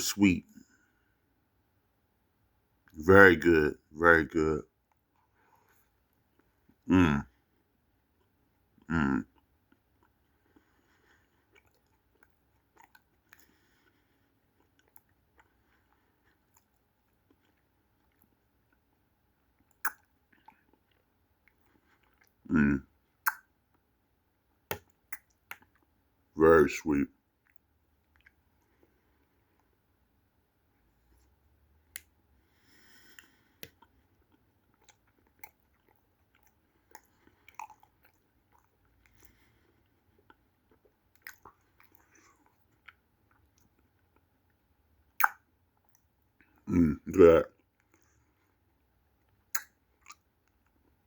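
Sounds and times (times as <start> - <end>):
chewing mouth clicks and smacks: 9.3 - 22.4, 23.2 - 23.8, 24.7 - 25.9, 27.4 - 29.8, 32.9 - 46.7, 47.5 - 51.0.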